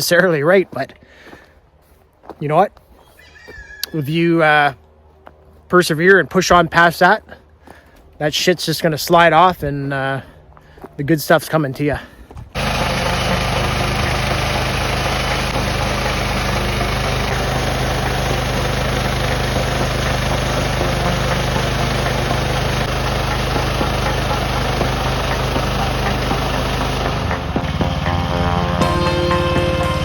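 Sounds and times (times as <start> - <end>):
small gasoline engine running: 12.6 - 30.0.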